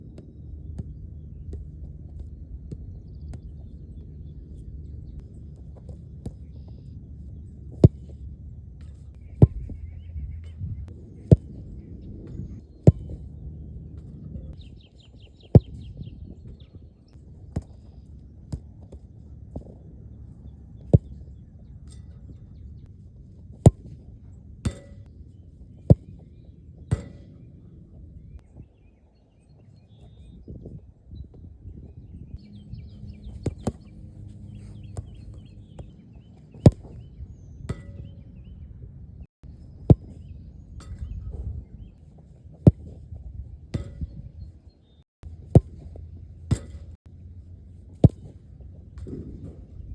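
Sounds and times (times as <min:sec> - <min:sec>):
low steady rumble: 0:00.0 - 0:14.6, 0:31.5 - 0:49.9
ball being kicked: 0:05.2 - 0:08.3, 0:08.9 - 0:13.4, 0:15.4 - 0:16.0, 0:20.8 - 0:21.3, 0:23.5 - 0:25.1, 0:25.8 - 0:27.5, 0:33.2 - 0:37.0, 0:39.8 - 0:41.7, 0:42.3 - 0:44.5, 0:45.2 - 0:47.0, 0:47.8 - 0:49.9.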